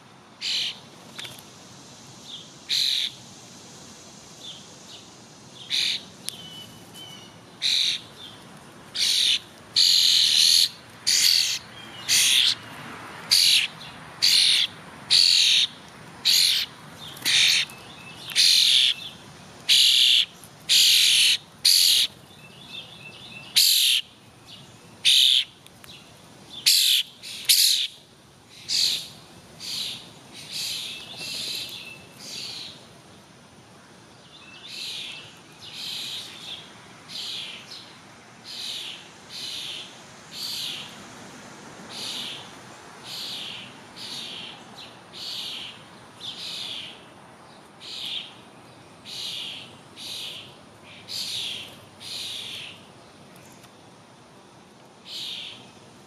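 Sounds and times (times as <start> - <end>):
loud short bird calls: 0.4 - 0.8, 2.7 - 3.2, 5.7 - 8.1, 9.0 - 12.6, 13.3 - 22.2, 23.5 - 24.1, 25.0 - 25.5, 26.6 - 28.0, 28.6 - 32.8
faint chirps of other birds: 0.4 - 1.4, 2.2 - 3.2, 4.4 - 12.7, 13.3 - 33.3, 33.9 - 41.0, 41.9 - 53.8, 55.0 - 55.9.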